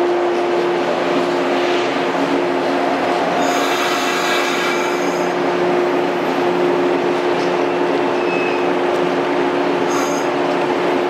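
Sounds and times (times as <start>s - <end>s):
electric train humming: 0.0s - 11.0s
high-pitched train squeal: 3.4s - 5.4s, 7.6s - 8.7s, 9.8s - 10.4s.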